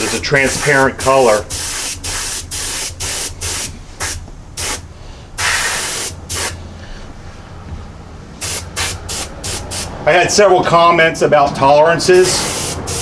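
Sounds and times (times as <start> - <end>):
paint spray gun hissing: 0.0 - 4.8, 5.4 - 6.6, 8.4 - 9.9, 12.2 - 13.0
steady low hum: 0.0 - 11.3.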